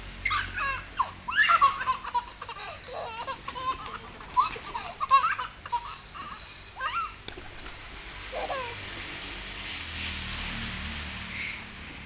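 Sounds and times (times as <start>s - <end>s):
baby laughing and squealing: 0.2s - 9.0s.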